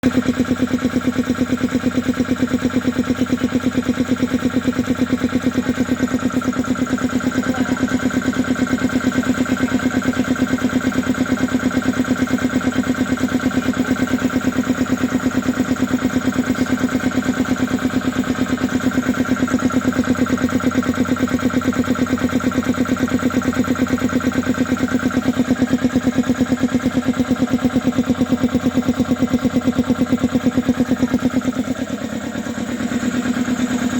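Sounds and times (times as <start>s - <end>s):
air compressor pulsing: 0.0s - 33.9s.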